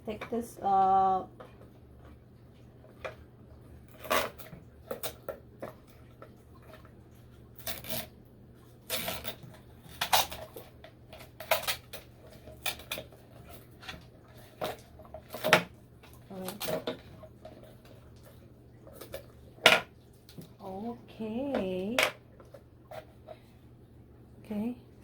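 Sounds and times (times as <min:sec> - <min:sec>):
plastic parts clicking and knocking: 0:13.8 - 0:15.7.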